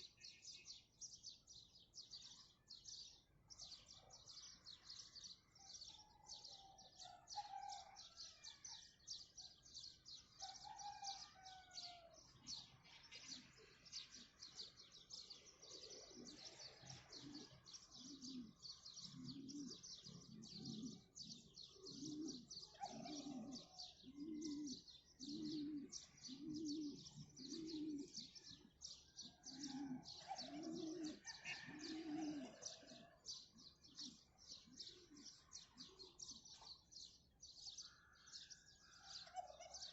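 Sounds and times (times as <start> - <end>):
small birds chirping: 0.0 - 39.9
dove cooing: 10.4 - 36.8, 39.0 - 39.9
mid-pitched bird calls: 15.7 - 39.9.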